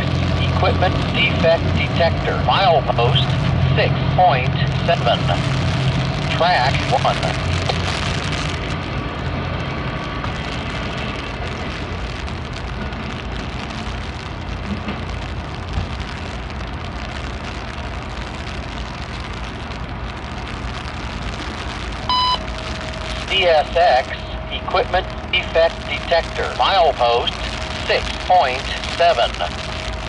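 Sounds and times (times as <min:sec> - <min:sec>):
train wheels rumbling on rails: 0:00.0 - 0:16.5
diesel locomotive engine: 0:00.0 - 0:30.0.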